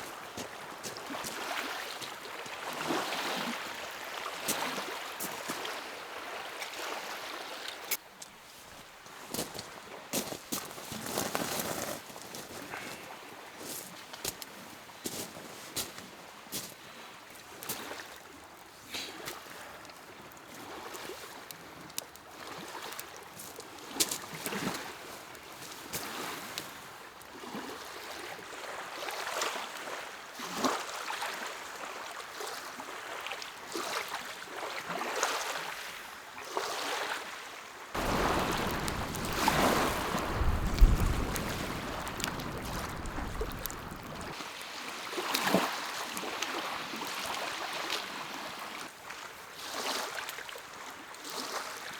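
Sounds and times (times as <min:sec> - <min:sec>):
waves lapping at shore: 0:00.0 - 0:51.9
rushing with low rumble: 0:38.0 - 0:44.4.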